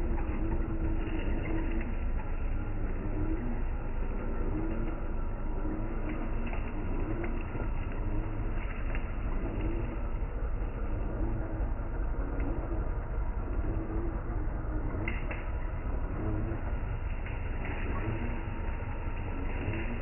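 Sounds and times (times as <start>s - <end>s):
mid-pitched motor whine: 0.0s - 20.0s.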